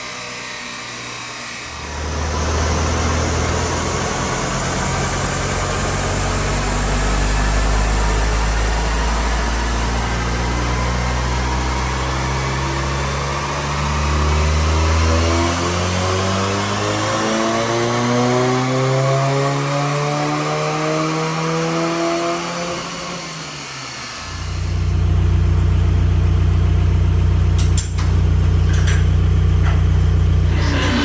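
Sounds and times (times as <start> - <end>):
car engine revving under load: 1.7 - 23.2.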